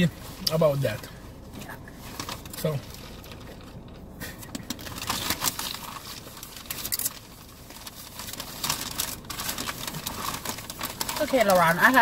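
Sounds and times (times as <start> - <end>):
crispy food crunching: 4.6 - 12.0.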